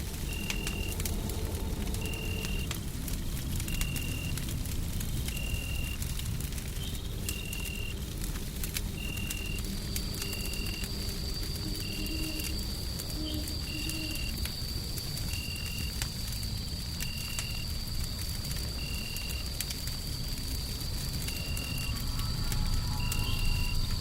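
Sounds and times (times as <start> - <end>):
low rumble: 0.0 - 5.5
fire crackling: 0.0 - 24.0
white noise hiss: 0.0 - 24.0.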